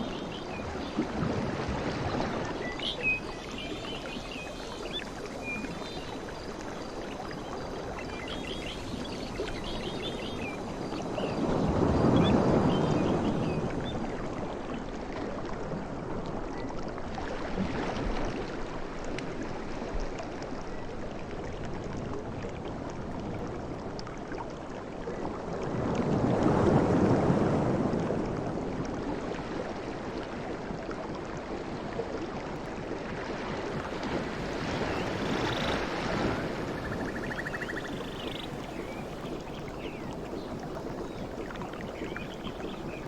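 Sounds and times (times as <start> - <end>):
surf washing on shore: 0.0 - 15.1, 25.6 - 30.7, 31.3 - 43.0.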